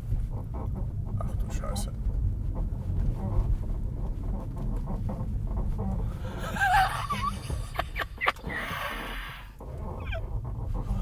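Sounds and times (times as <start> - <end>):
low road rumble: 0.0 - 11.0
control arms squealing: 5.8 - 11.0.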